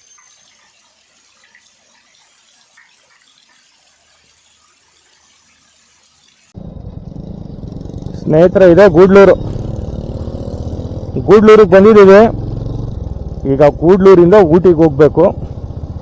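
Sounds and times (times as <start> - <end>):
soft bird chirps: 0.0 - 6.5
motorcycle engine running: 6.6 - 16.0.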